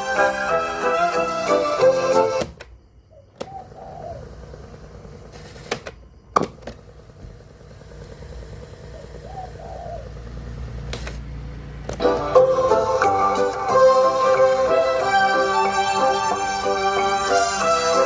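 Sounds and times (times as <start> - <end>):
sharp clicks from a cassette player: 5.4 - 6.8, 10.8 - 11.2.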